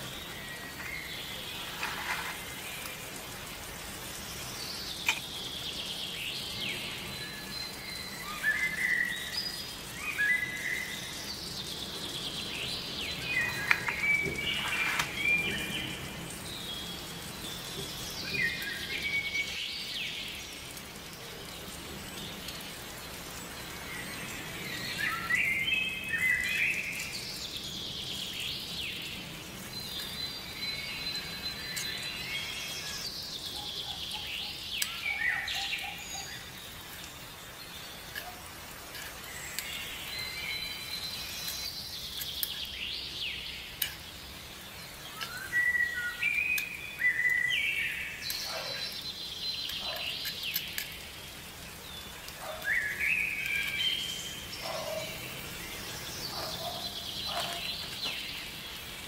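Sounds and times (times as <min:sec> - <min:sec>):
faint steady hiss: 0:00.0 - 0:59.0
birds chirping and singing: 0:04.2 - 0:20.8, 0:21.6 - 0:59.0.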